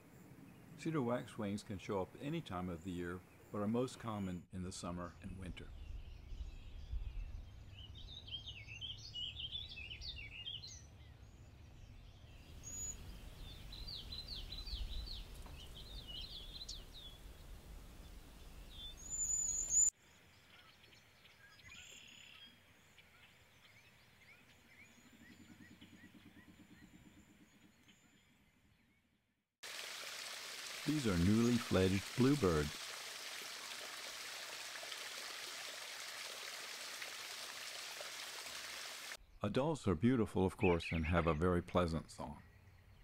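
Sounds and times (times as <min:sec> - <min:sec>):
birds chirping and calling: 0:12.6 - 0:17.4, 0:30.9 - 0:32.7, 0:40.4 - 0:43.0
thin high whistled bird notes: 0:18.5 - 0:19.9.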